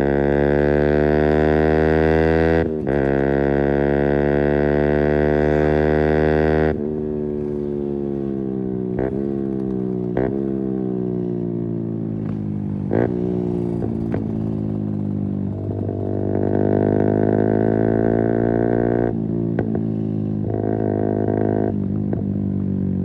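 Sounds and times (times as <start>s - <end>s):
motorcycle engine revving: 0.0s - 23.0s
exhaust pops: 12.2s - 17.6s.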